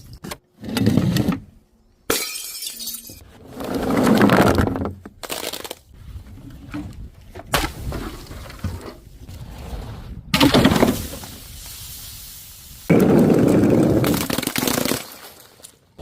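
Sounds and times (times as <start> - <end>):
glass bottles breaking: 2.1 - 3.2.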